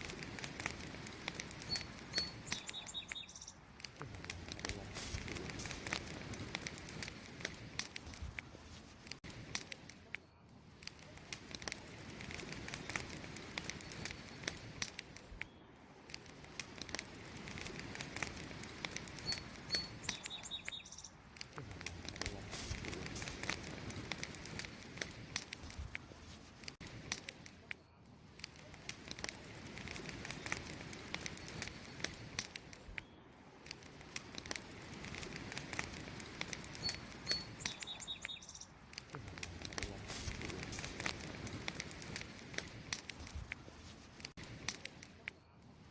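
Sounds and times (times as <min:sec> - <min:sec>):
campfire crackling and popping: 0:00.0 - 0:45.9
faint high chirps: 0:01.6 - 0:03.6, 0:36.6 - 0:38.8.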